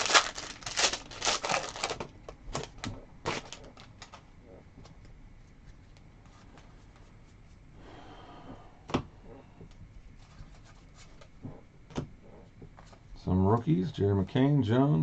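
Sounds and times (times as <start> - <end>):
card rustle: 0.0 - 2.0.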